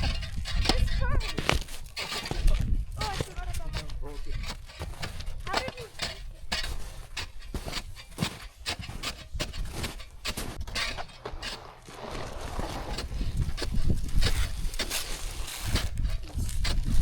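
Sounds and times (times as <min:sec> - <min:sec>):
footsteps crunching in snow: 0:00.0 - 0:17.0
sliding scrape over snow: 0:00.0 - 0:17.0.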